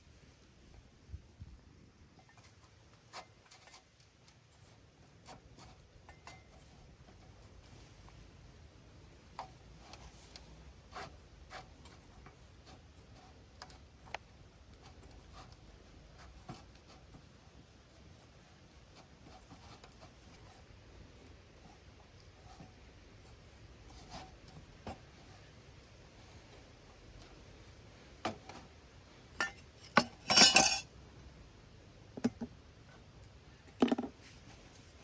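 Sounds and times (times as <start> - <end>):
low steady background rumble: 0.0 - 35.0
light clicks and rubbing: 2.2 - 8.2.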